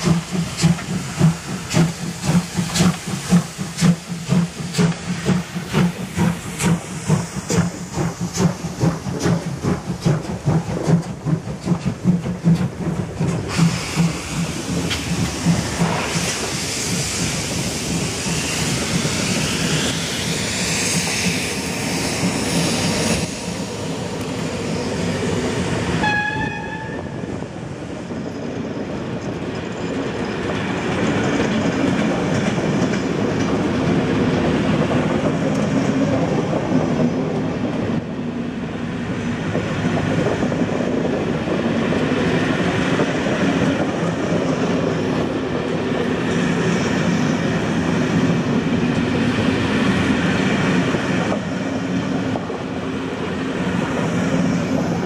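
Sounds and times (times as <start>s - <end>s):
train wheels rumbling and clattering: 0.0s - 55.0s
train whistle: 26.0s - 27.3s.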